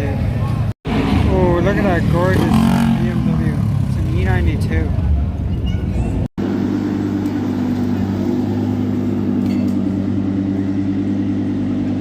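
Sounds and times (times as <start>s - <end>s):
car engine idling: 6.4s - 12.0s.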